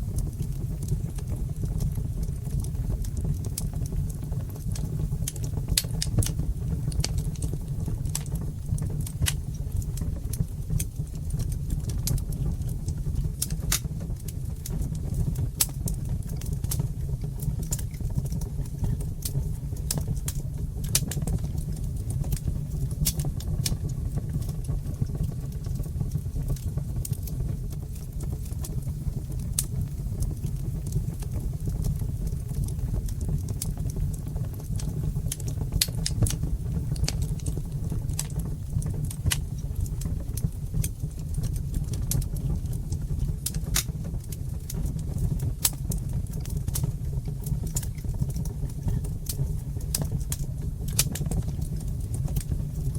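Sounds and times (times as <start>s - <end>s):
fire crackling and popping: 0.0s - 52.9s
low rumble of flames: 0.0s - 52.9s.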